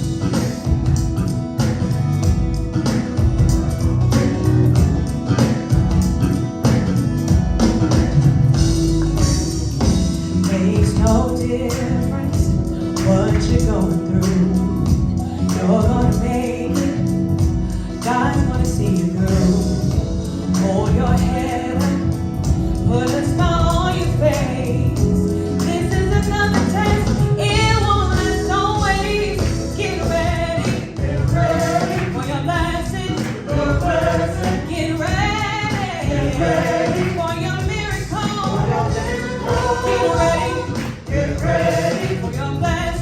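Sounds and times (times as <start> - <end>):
band accompaniment: 0.0 - 43.0
choir singing: 30.0 - 32.6, 33.3 - 43.0.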